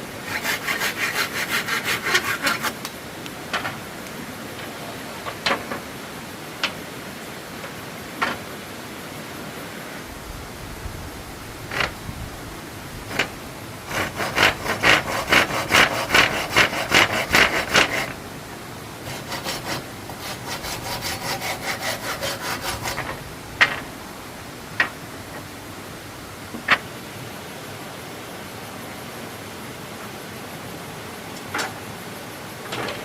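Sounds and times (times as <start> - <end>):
hand saw cutting wood: 0.2 - 2.8, 13.1 - 13.3, 13.9 - 18.2, 19.0 - 23.9.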